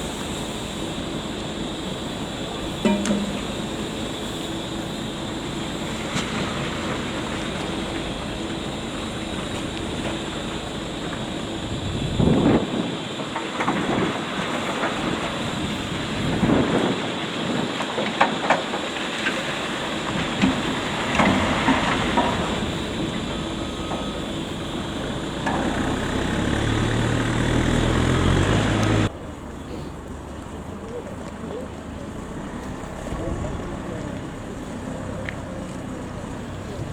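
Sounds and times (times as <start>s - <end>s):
train clanks and knocks: 0.0s - 36.9s
train rumbling: 0.0s - 36.9s.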